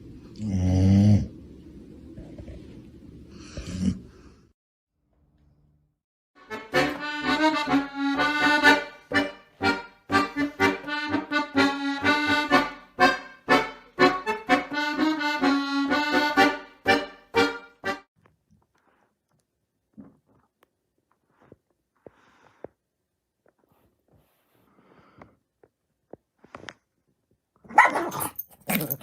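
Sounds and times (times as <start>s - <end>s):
accordion music: 6.4s - 18.1s.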